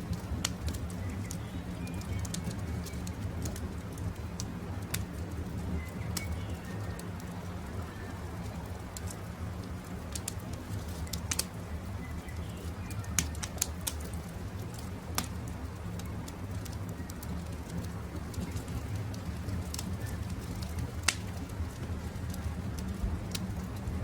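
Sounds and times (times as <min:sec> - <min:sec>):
campfire crackling: 0:00.0 - 0:24.0
birds calling faintly: 0:00.1 - 0:23.8.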